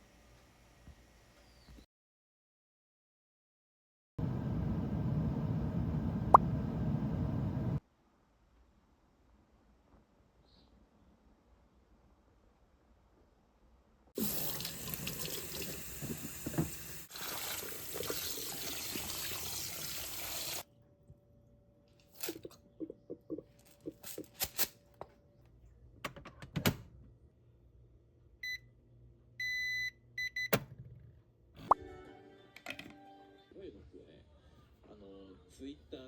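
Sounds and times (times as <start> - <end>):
tap water running into sink: 14.2 - 20.6.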